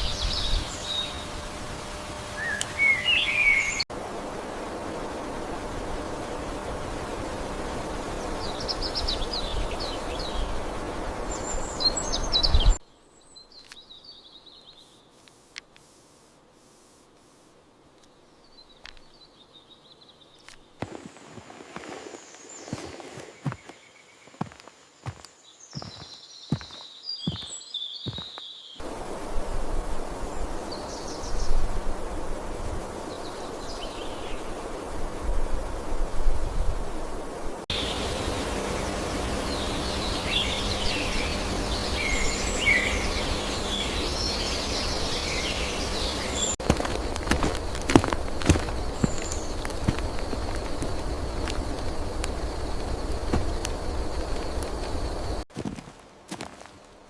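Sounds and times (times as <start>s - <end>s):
small birds singing trills: 0.0s - 1.4s, 2.3s - 3.9s, 8.1s - 15.1s, 18.0s - 20.8s, 21.8s - 28.8s, 37.7s - 55.4s
rushing flowing water: 45.2s - 54.6s.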